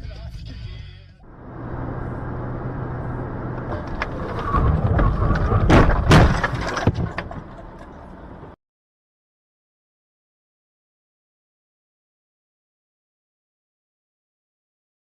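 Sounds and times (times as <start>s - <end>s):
road and engine noise: 1.2s - 8.6s
car collision crashes: 1.5s - 8.6s
small knocks: 3.6s - 8.2s.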